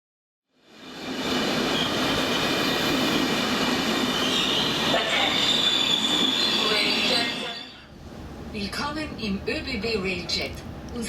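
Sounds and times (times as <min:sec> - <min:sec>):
train rumbling on rails: 0:00.6 - 0:11.0
train wheel squeal: 0:01.1 - 0:07.9.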